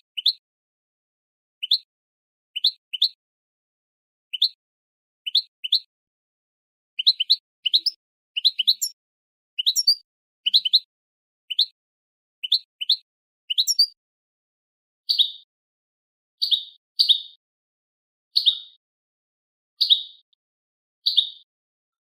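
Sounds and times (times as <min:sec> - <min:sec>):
bird chirp calls: 0:02.5 - 0:03.2, 0:04.3 - 0:04.6, 0:05.2 - 0:05.9, 0:07.0 - 0:09.0, 0:09.6 - 0:10.9, 0:11.5 - 0:11.8, 0:12.4 - 0:14.0, 0:16.4 - 0:17.4, 0:18.4 - 0:18.8, 0:19.8 - 0:20.3, 0:21.0 - 0:21.5.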